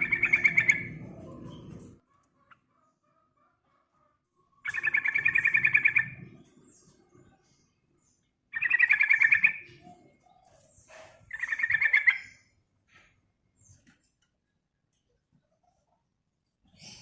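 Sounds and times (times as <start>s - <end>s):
bulbul chattering trills: 0.0s - 1.2s.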